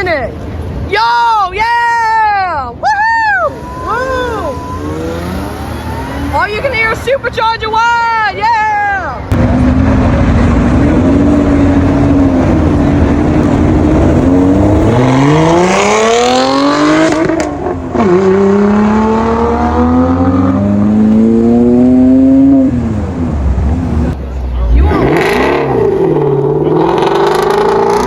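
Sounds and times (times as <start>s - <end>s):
car engine accelerating hard: 3.6s - 6.7s, 9.3s - 28.0s.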